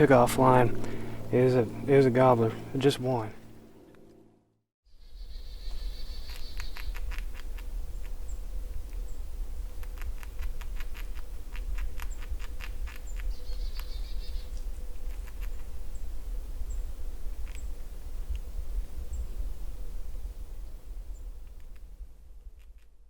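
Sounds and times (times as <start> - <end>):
low rumble: 0.0 - 4.5
songbirds chirping and singing: 13.1 - 14.7.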